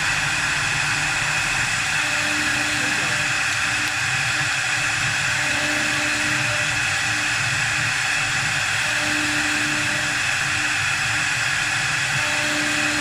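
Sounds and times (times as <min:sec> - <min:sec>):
wood lathe cutting: 0:00.0 - 0:13.0.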